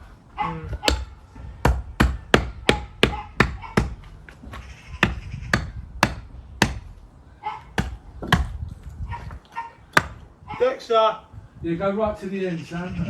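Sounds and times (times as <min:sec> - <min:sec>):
hand tamper pounding stones: 0:00.8 - 0:07.0, 0:07.7 - 0:08.6, 0:09.9 - 0:10.3.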